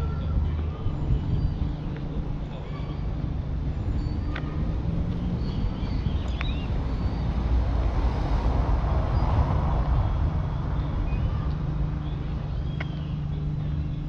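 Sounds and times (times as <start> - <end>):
low engine hum: 0.0 - 14.0
vehicle passing: 6.7 - 13.8.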